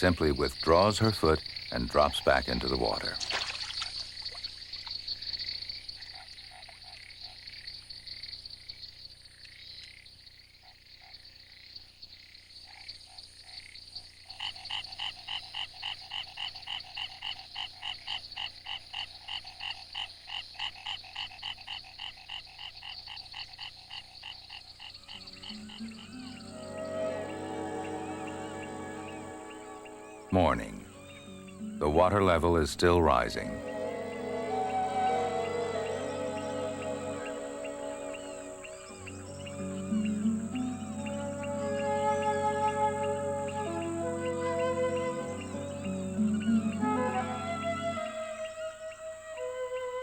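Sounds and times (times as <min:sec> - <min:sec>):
chorus of frogs calling: 0:00.0 - 0:50.0
loud pulsing frog call: 0:12.7 - 0:50.0
music: 0:25.0 - 0:50.0.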